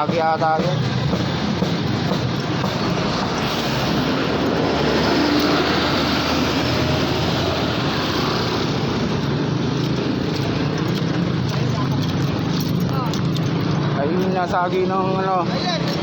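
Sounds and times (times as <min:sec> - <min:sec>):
heavy vehicle passing: 0:00.0 - 0:12.6
vehicles passing close by: 0:00.0 - 0:16.0.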